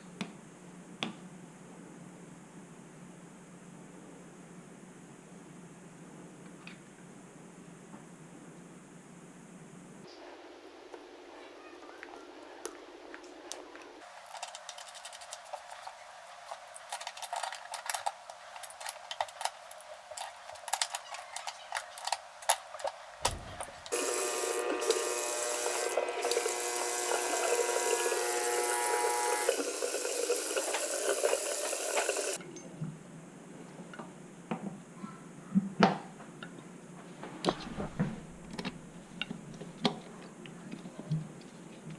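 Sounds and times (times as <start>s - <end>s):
water running: 23.1s - 32.4s.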